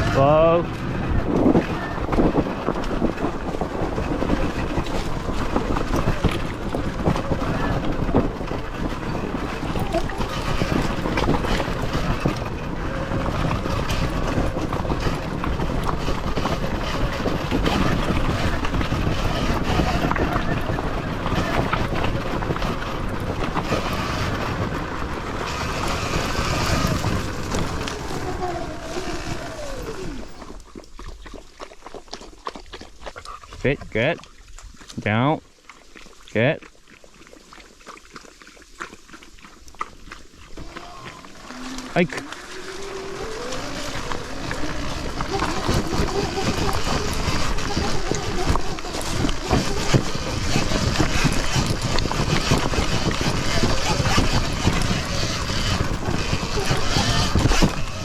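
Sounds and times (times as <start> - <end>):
knocks and rattles: 0.0 - 30.8
wind buffeting microphone: 0.0 - 35.4, 39.6 - 58.0
dirt bike rumble: 0.0 - 36.6, 38.4 - 58.0
tyre noise: 0.0 - 58.0
electric motor whine: 9.2 - 30.6, 40.5 - 58.0.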